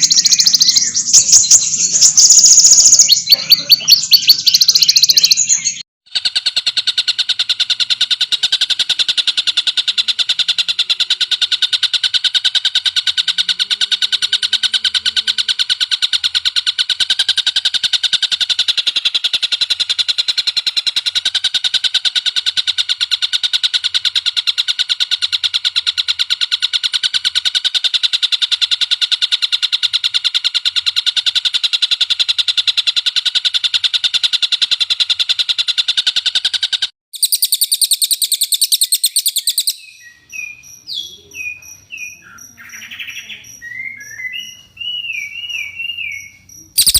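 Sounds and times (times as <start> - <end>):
songbird trilling: 0.0 - 5.8, 37.2 - 46.9.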